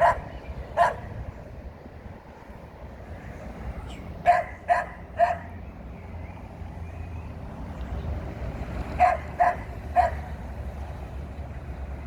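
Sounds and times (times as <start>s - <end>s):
dog barking: 0.0s - 1.1s, 4.3s - 5.5s, 9.0s - 10.2s.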